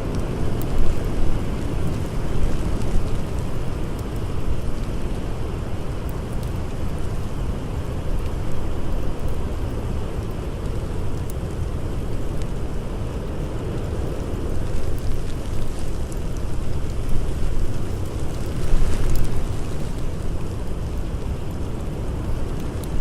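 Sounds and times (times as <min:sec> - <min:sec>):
faint campfire crackles: 0:00.0 - 0:23.0
blizzard wind blowing: 0:11.4 - 0:23.0.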